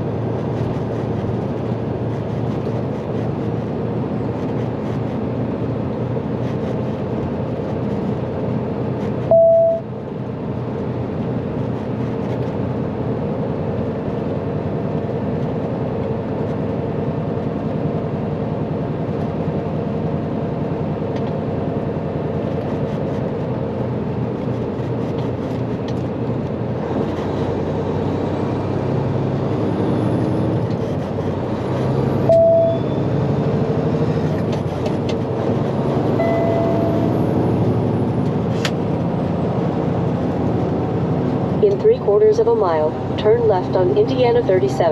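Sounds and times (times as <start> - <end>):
truck diesel engine running: 0.0 - 44.9
loud single-pitch beep: 9.3 - 9.9, 32.2 - 33.0, 36.2 - 37.1.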